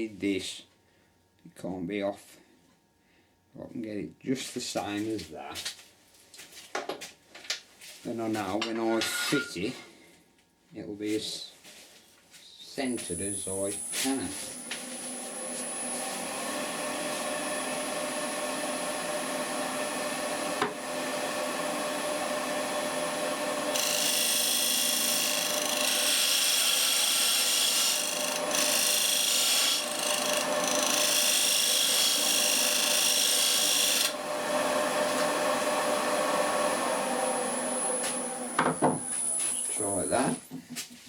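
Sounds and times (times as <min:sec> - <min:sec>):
woodworking machine humming and whining: 0:13.0 - 0:40.1
wood rasping against machine: 0:16.9 - 0:36.5.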